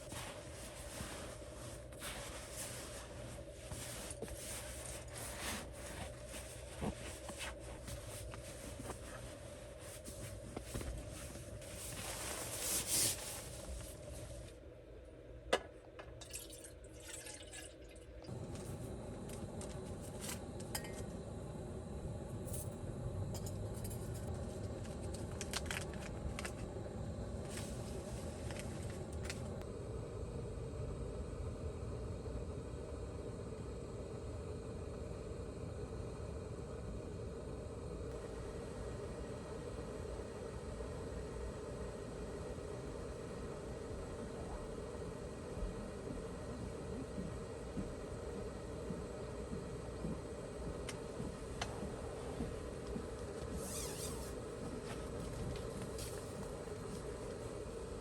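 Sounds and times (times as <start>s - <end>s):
steady low rumble: 18.3s - 58.0s.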